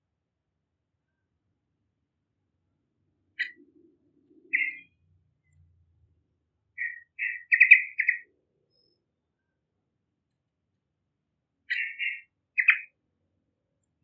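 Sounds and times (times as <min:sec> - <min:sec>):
bird chirping: 0:03.3 - 0:05.7, 0:06.8 - 0:09.6, 0:11.7 - 0:13.0.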